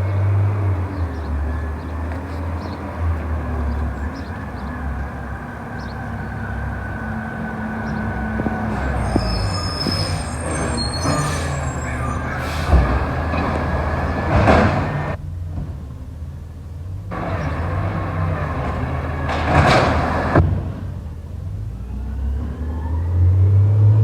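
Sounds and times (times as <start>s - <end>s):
garbage truck engine running: 0.0s - 16.0s, 17.1s - 20.7s
high-pitched squealing: 3.7s - 15.2s.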